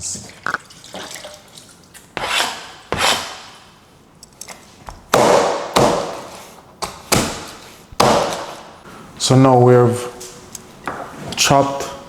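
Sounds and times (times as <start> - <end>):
knife chopping bone on cutting board: 5.1 - 8.6.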